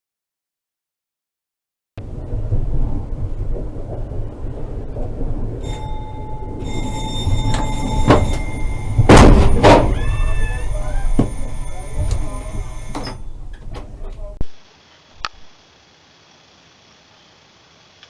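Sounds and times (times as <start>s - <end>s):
moving vehicle rumbling: 2.0s - 14.4s
steady high tone: 5.6s - 13.5s
sharp knocks: 7.5s - 10.0s.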